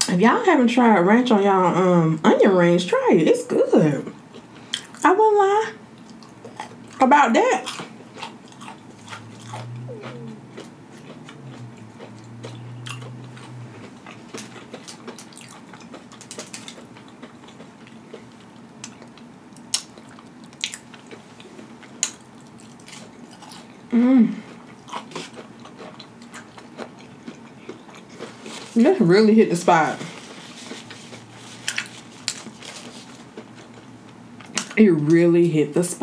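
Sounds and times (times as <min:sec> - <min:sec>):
chewing crunchy onion rings: 0:04.1 - 0:05.3, 0:05.9 - 0:34.8
person humming: 0:09.7 - 0:10.6, 0:23.9 - 0:24.5.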